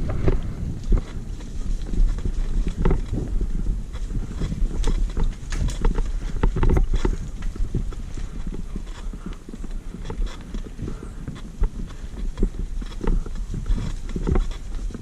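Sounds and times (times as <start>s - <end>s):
low rumble: 0.0s - 10.0s
mountain bike clattering on trail: 0.0s - 15.0s.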